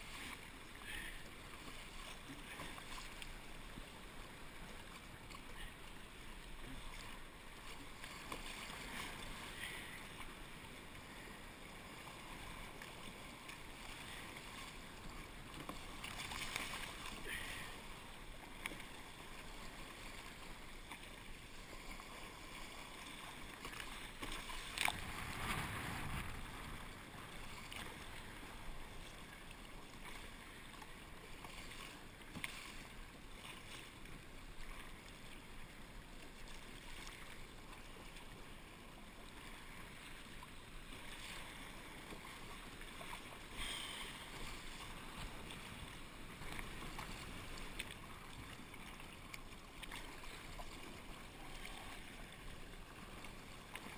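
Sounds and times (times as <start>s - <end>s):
water lapping around a kayak: 0.0s - 53.9s
water splashes: 0.0s - 53.9s.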